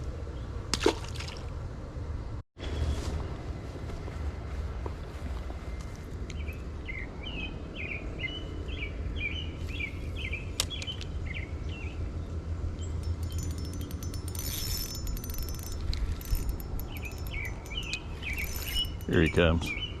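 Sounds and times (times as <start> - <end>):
rapid high-pitched ticking: 13.0 - 19.6.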